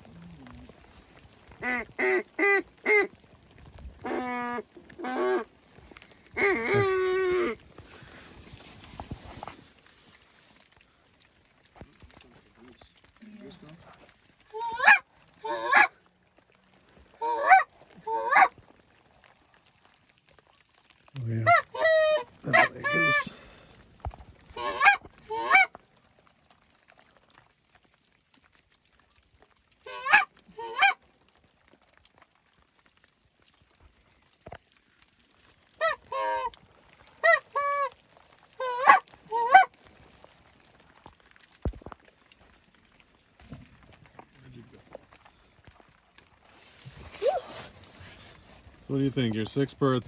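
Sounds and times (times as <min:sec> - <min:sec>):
goose honking: 0:04.0 - 0:05.5, 0:06.4 - 0:07.6, 0:14.5 - 0:15.9, 0:17.2 - 0:18.5, 0:21.4 - 0:23.3, 0:24.6 - 0:25.7, 0:29.8 - 0:31.0, 0:35.8 - 0:36.5, 0:37.2 - 0:37.9, 0:38.6 - 0:39.7.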